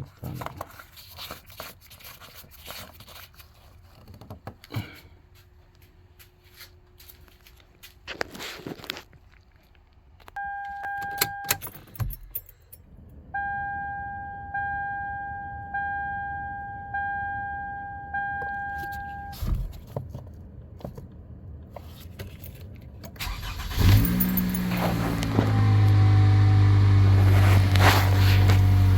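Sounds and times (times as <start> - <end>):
car warning beep: 10.4 - 11.8, 13.3 - 19.4
car warning chimes: 10.4 - 12.5, 13.2 - 19.4
car engine cranking and starting: 23.1 - 28.9.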